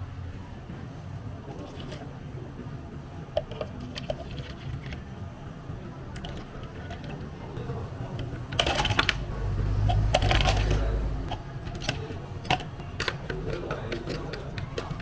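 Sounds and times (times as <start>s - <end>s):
utensils and containers clattering: 6.2s - 15.0s
low rumble: 7.6s - 11.4s.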